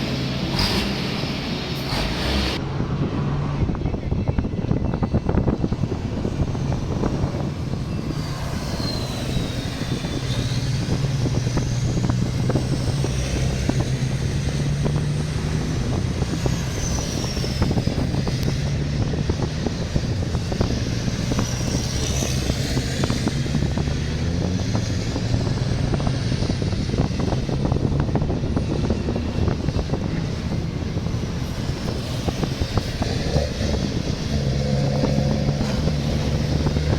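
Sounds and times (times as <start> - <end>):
diesel engines droning: 0.0 - 36.9
high whistling tones: 7.8 - 12.0.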